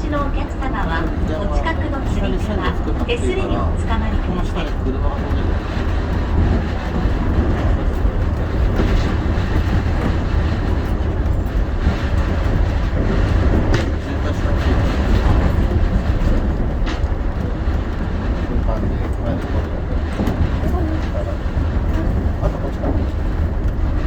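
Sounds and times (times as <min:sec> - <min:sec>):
monorail car rumbling: 0:00.0 - 0:24.0.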